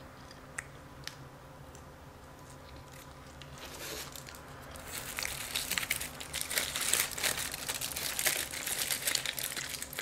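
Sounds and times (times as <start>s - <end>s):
wrapping crinkling: 2.6s - 10.0s.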